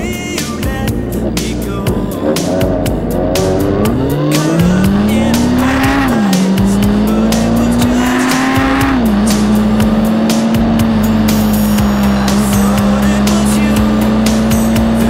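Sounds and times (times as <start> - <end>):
motorcycle engine accelerating: 0.0 - 15.0
music playing: 0.0 - 15.0.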